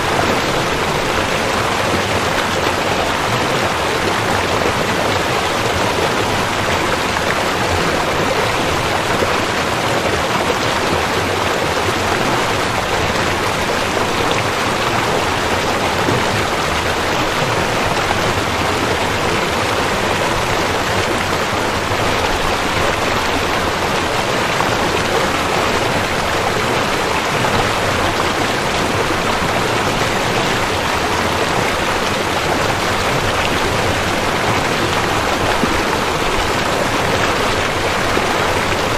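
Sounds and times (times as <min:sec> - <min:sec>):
river water flowing: 0:00.0 - 0:38.9.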